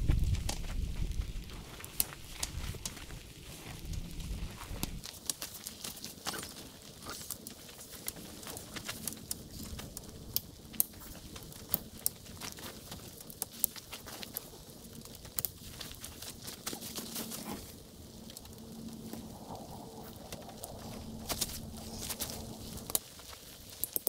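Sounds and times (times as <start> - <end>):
faint low hum: 0.0 - 5.0, 15.6 - 23.0
raindrops ticking on a surface: 0.0 - 24.0.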